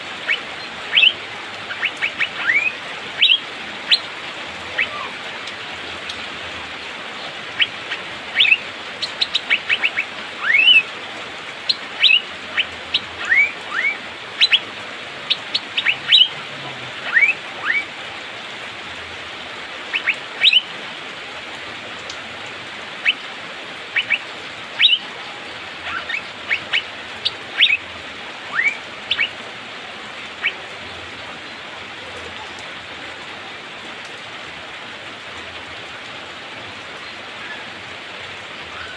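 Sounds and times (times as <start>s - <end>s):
rain hiss: 0.0s - 38.9s
bird whistling calls: 0.2s - 4.0s, 4.7s - 5.2s, 8.3s - 10.9s, 13.2s - 14.6s, 15.3s - 16.3s, 17.1s - 17.9s, 24.0s - 24.2s, 24.8s - 25.0s, 28.5s - 29.4s.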